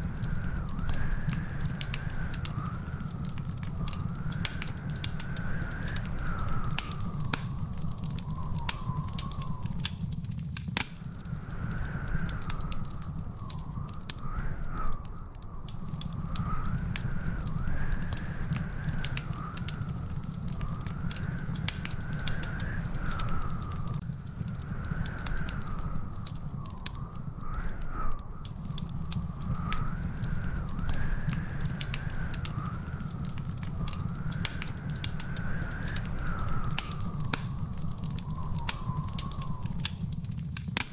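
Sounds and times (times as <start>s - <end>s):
wood fire crackling and popping: 0.0s - 40.9s
wavering whistle-like tone: 33.8s - 40.1s.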